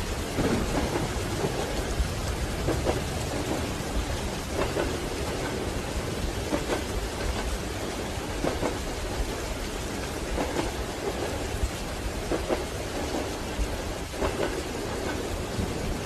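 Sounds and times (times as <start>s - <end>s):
low train rumble: 0.0s - 16.0s
rain on a train window: 0.0s - 16.0s
train wheels knocking over rail joints: 0.2s - 5.7s.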